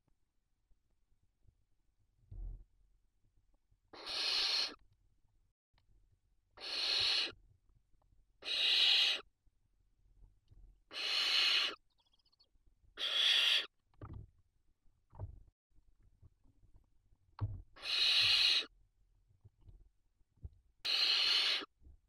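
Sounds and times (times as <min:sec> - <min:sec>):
owl chicks rasping hiss-like calls: 0:03.9 - 0:04.8, 0:06.6 - 0:07.4, 0:08.4 - 0:09.3, 0:10.9 - 0:11.8, 0:13.0 - 0:13.7, 0:17.8 - 0:18.7, 0:20.8 - 0:21.7.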